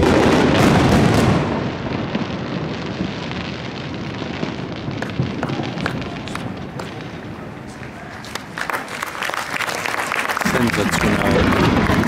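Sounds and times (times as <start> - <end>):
fireworks crackling and rumbling: 0.0 - 12.0
sharp pops: 4.9 - 7.1
loud burst of shells: 10.5 - 12.0.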